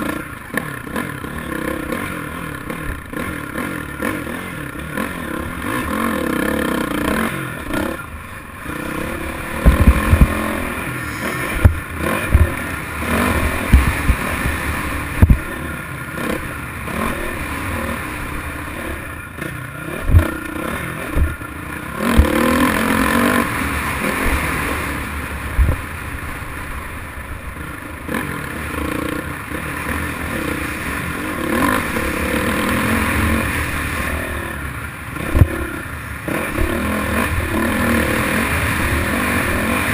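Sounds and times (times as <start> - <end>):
dirt bike engine revving: 0.0 - 39.9
sharp low thumps and clatter: 9.0 - 15.6, 20.0 - 20.4, 21.1 - 21.4, 22.0 - 23.0, 25.6 - 25.8, 35.2 - 35.6.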